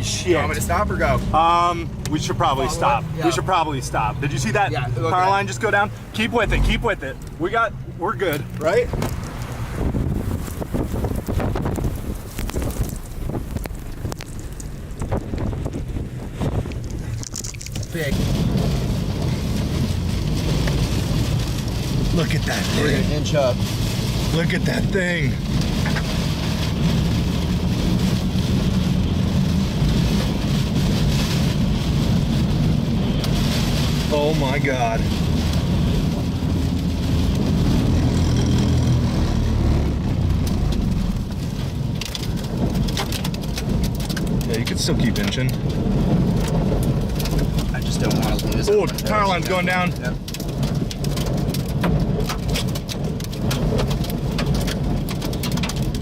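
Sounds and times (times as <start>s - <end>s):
car engine rumbling: 0.0s - 56.0s
heavy rain pelting a vehicle: 0.0s - 56.0s
wind noise: 0.0s - 56.0s.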